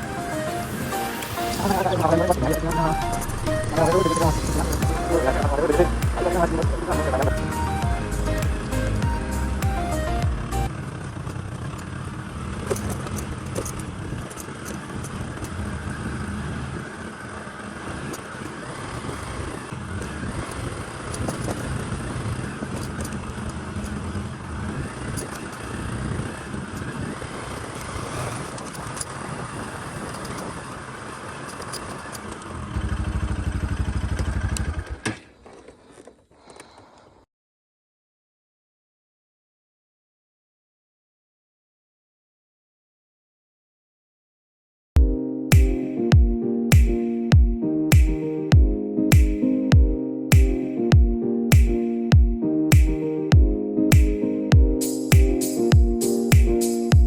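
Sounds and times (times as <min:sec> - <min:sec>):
bicycle rattling and clicking: 0:10.9 - 0:35.2.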